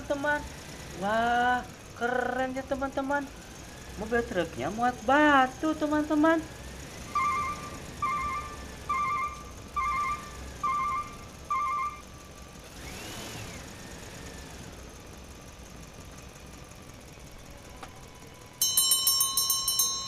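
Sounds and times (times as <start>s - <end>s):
short warbling electronic beeps: 7.1s - 12.0s
rapid bell-like ringing: 18.4s - 20.0s.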